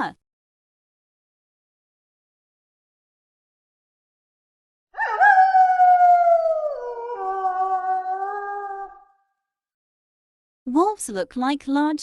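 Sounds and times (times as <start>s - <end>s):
wolf howling: 5.0s - 9.2s.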